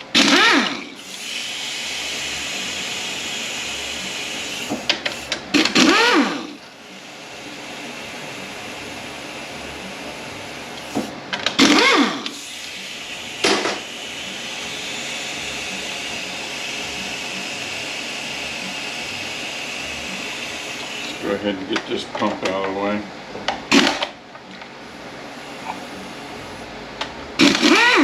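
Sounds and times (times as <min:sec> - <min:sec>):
power tool motor whirring: 0:00.0 - 0:06.6, 0:10.7 - 0:21.3, 0:27.4 - 0:28.0
steady shop hiss: 0:00.8 - 0:23.8, 0:24.8 - 0:27.8.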